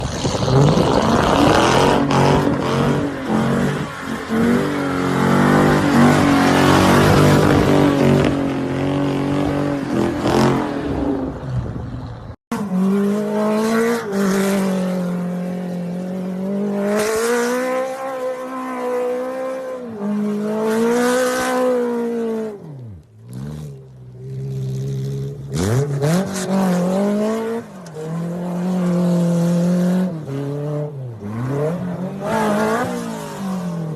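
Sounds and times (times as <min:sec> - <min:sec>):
engine revving up and down: 0:00.0 - 0:11.4
car engines at full throttle: 0:00.0 - 0:33.9.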